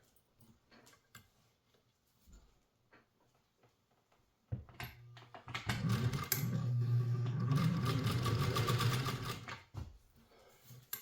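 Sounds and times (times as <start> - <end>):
sewing machine running: 5.6 - 9.6.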